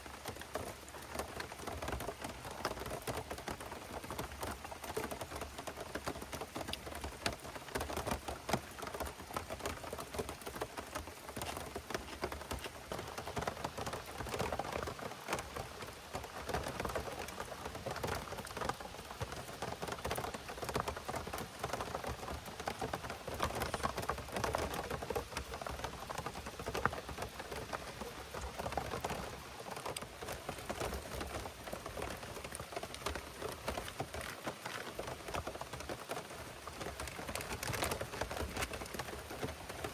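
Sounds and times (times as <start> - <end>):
raindrops ticking on a surface: 0.0 - 39.9.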